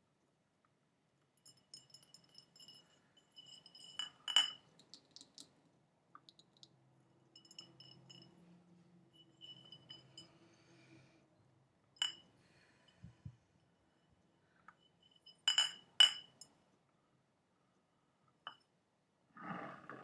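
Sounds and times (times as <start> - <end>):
tapping on glass container: 1.4 - 5.5, 7.4 - 8.3, 12.0 - 12.3, 15.3 - 16.5.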